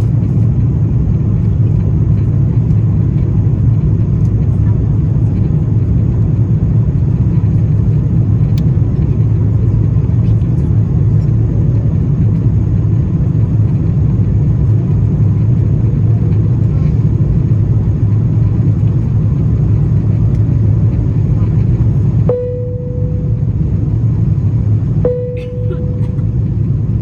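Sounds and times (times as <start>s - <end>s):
jet engines rumbling: 0.0s - 27.0s
faint steady high tone: 22.3s - 24.0s, 25.0s - 26.5s.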